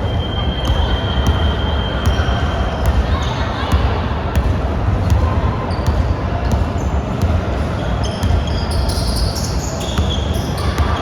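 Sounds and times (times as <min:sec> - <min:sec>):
sneaker squeaks: 0:00.0 - 0:04.0, 0:05.0 - 0:11.0
basketballs bouncing: 0:00.6 - 0:11.0.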